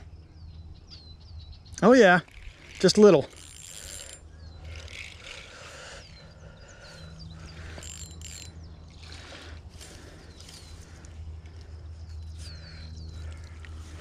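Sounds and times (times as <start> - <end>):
small birds calling: 0.0 - 14.0
rustles: 7.5 - 14.0.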